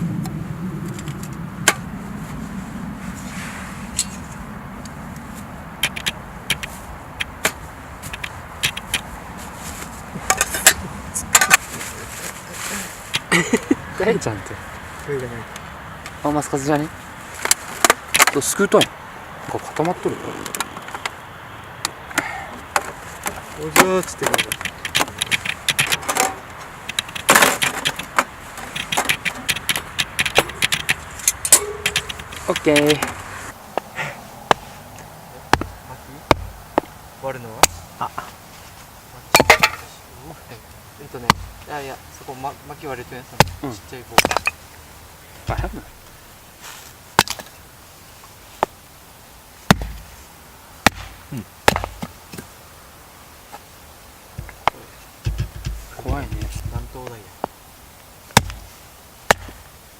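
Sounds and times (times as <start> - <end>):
scraping rustle of firewood: 2.1 - 4.5, 6.6 - 13.8, 16.1 - 18.8, 22.8 - 35.1, 37.8 - 40.0, 43.7 - 48.8
wood knocking on wood: 22.8 - 33.2, 35.5 - 36.9, 45.5 - 45.9, 54.4 - 56.9
dull thud: 35.5 - 36.9, 45.5 - 45.9, 49.7 - 50.1, 54.4 - 56.8, 58.4 - 58.7.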